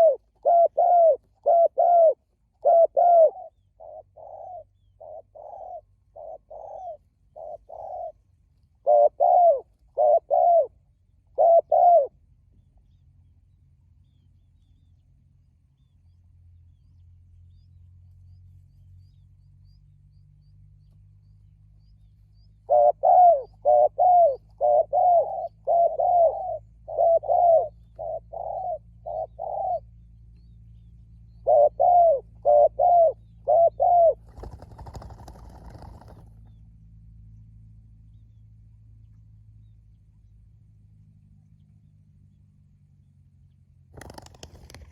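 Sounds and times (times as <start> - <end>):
dove cooing: 0.0 - 8.2, 8.8 - 12.2, 22.6 - 29.9, 31.4 - 36.4.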